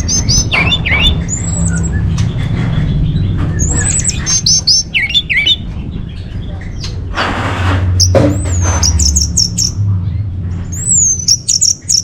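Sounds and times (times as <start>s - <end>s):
thrush singing: 0.0s - 5.7s.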